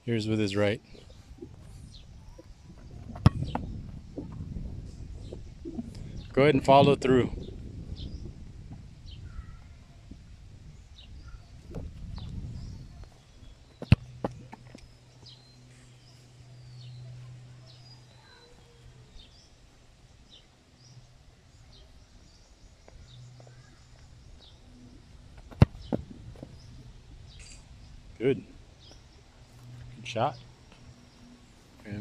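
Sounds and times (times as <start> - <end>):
birds chirping: 0.0 - 32.0
football kicked thump: 3.1 - 3.8, 13.8 - 14.6, 25.5 - 26.6.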